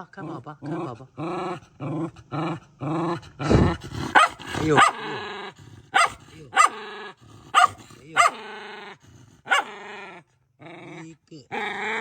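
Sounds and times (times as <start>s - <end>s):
dog barking: 4.0s - 5.2s, 5.9s - 8.6s, 9.4s - 9.9s.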